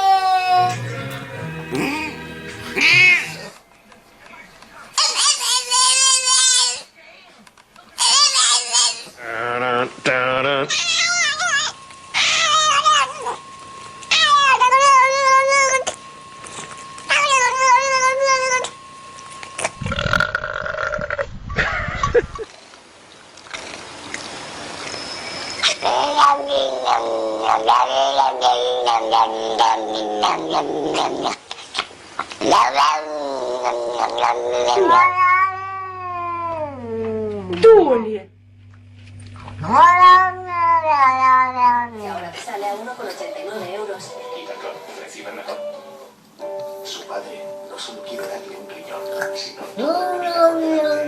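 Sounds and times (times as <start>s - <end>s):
animal screaming high-pitched: 0.0s - 0.8s, 2.8s - 3.6s, 5.0s - 6.9s, 8.0s - 13.4s, 14.1s - 15.9s, 17.1s - 18.8s, 25.5s - 31.4s, 32.4s - 37.5s, 39.6s - 42.0s.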